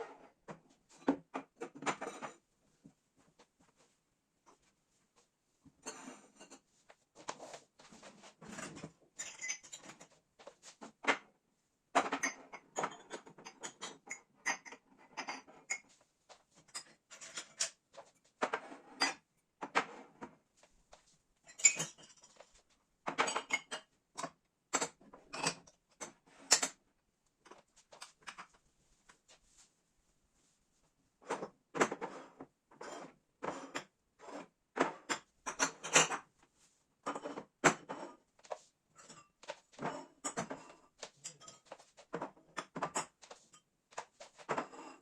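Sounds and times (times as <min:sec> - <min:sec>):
dishes clinking and clattering: 0:08.5 - 0:10.1, 0:11.9 - 0:16.0, 0:21.4 - 0:26.8, 0:31.3 - 0:36.3, 0:39.0 - 0:45.0.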